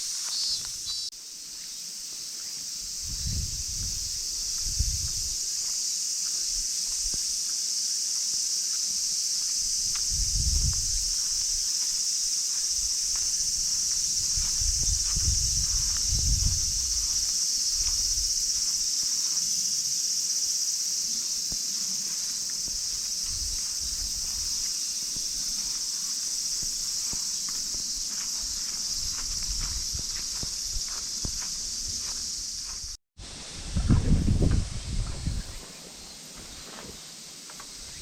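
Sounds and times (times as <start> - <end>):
insects shrilling: 0.0 - 33.0.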